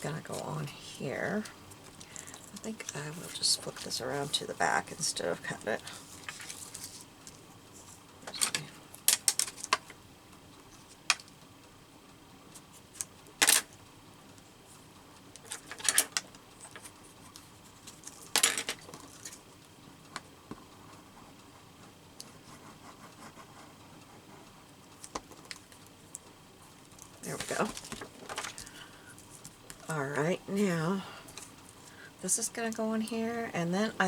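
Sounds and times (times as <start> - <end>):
paper and craft materials handled: 5.8 - 9.8, 27.0 - 30.2.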